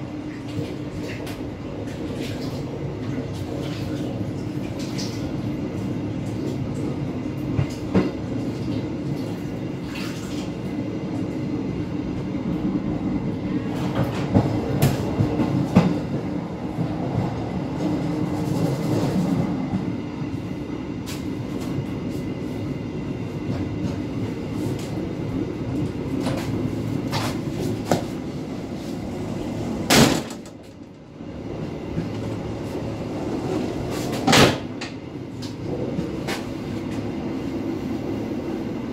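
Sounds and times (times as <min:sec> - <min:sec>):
train wheels rumbling on rails: 0:00.0 - 0:38.9
train clatter: 0:07.5 - 0:08.7, 0:13.6 - 0:19.9, 0:29.8 - 0:31.0.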